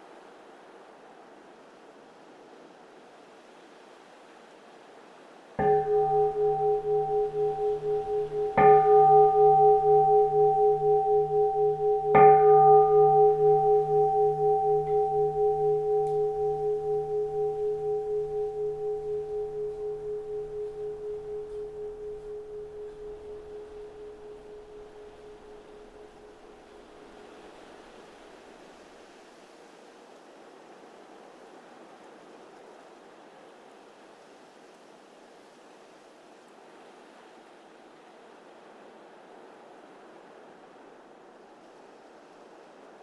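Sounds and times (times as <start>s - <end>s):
bowl-shaped bell ringing: 5.6s - 27.2s.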